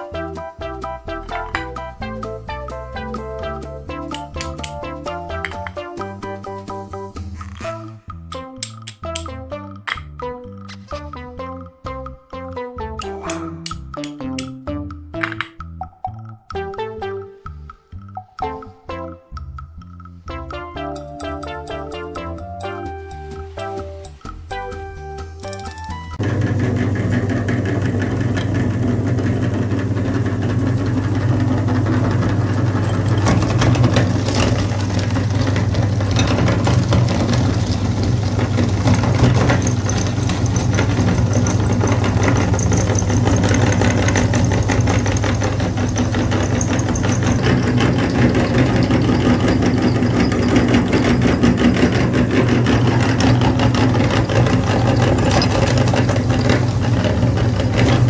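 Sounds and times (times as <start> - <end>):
tractor engine idling: 26.2 - 58.0.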